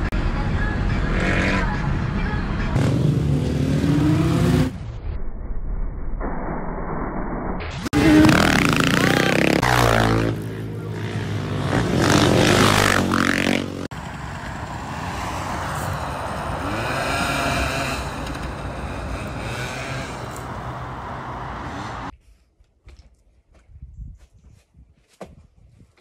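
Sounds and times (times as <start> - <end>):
motorcycle engine revving: 2.8 - 4.8, 7.9 - 22.1
distant small motorbike engine: 8.0 - 22.1.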